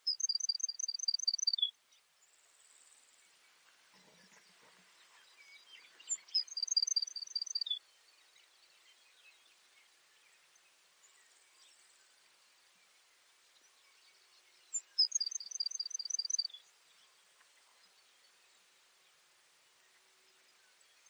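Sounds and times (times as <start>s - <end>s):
sparrow singing trill: 0.0s - 1.7s, 5.3s - 7.8s, 14.6s - 16.7s
faint background hiss: 0.0s - 21.0s.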